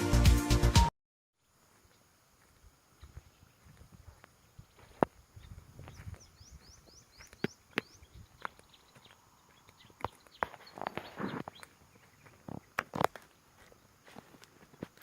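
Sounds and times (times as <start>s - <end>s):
high rising bird chirps: 4.4s - 12.8s.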